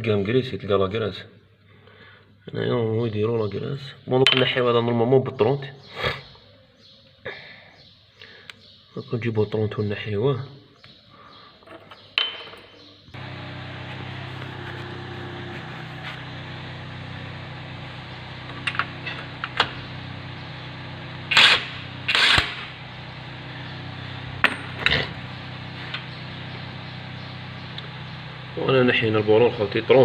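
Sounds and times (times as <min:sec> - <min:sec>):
power tool bursts: 0:13.2 - 0:30.0
steady motor hum: 0:13.2 - 0:30.0.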